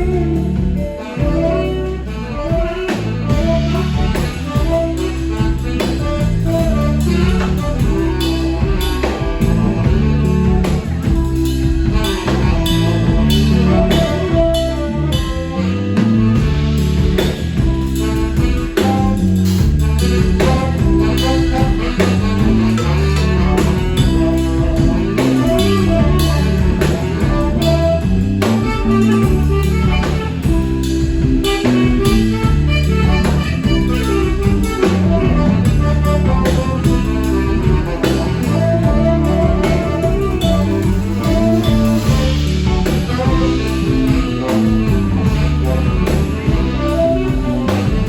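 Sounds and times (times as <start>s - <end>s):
bass line: 0.0s - 48.0s
drum kit beat: 0.0s - 48.0s
lead instrument melody: 0.0s - 48.0s.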